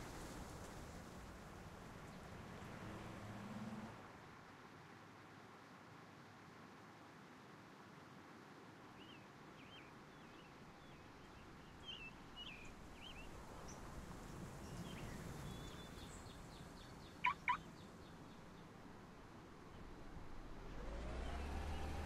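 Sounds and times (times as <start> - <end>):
faint bird chirps: 14.7 - 18.1
loud bird calls: 16.8 - 17.9.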